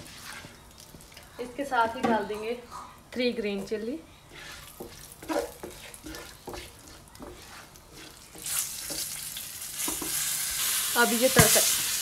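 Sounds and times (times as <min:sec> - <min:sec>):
chillies sizzling in a wok: 0:00.0 - 0:12.0
spatula scraping and tapping pan: 0:04.3 - 0:09.2, 0:09.8 - 0:10.3.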